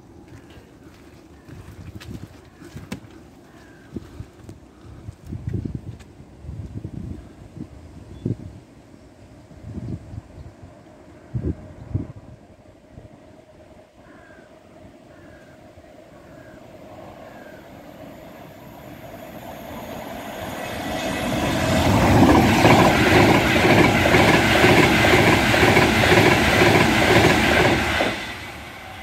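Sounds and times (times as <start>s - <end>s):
express train rushing past: 15.8s - 29.0s.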